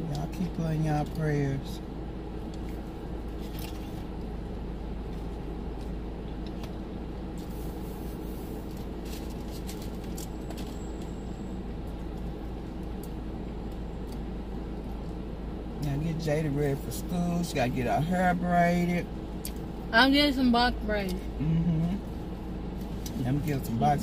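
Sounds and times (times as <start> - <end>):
idling car inside cabin: 0.0 - 24.0.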